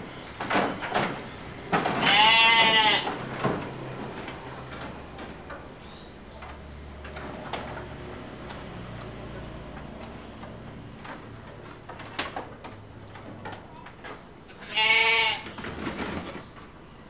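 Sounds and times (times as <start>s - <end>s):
sheep bleating: 2.0s - 3.1s, 14.6s - 15.4s.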